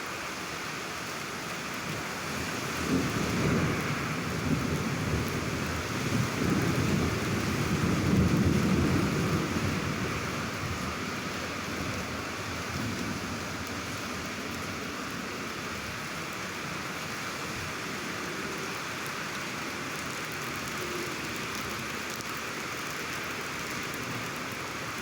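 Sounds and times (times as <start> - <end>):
steady rain: 0.0 - 25.0
rolling thunder: 2.9 - 10.9.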